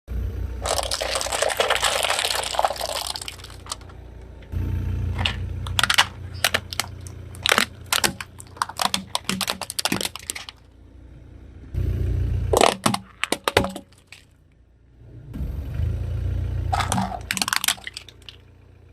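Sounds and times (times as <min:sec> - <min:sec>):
low engine rumble: 0:00.0 - 0:18.9
objects cracking under tyre: 0:00.6 - 0:04.5, 0:05.1 - 0:10.7, 0:12.5 - 0:14.5, 0:16.7 - 0:18.5.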